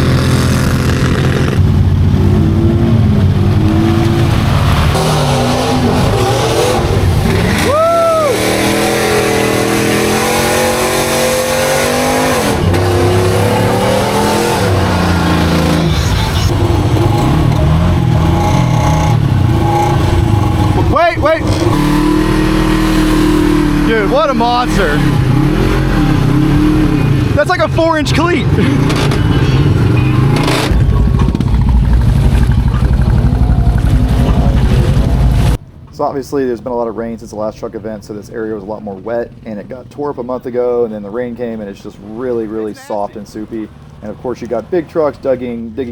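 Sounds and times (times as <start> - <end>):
off-road vehicle engine revving: 0.0 - 35.6.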